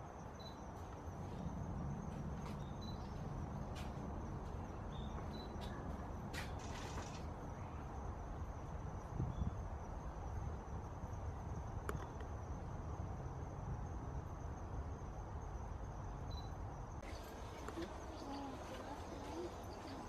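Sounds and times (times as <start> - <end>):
wind rumble on microphone: 1.5 - 14.0.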